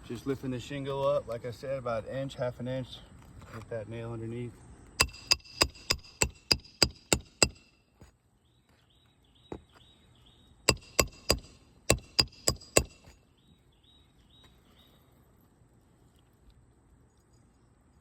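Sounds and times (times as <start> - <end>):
hammer striking metal: 5.0 - 7.7, 10.7 - 13.2.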